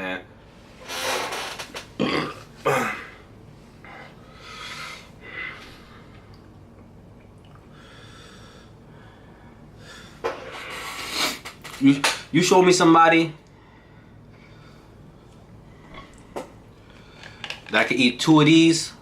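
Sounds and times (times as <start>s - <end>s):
man breathing hard through mouth: 7.7s - 11.4s.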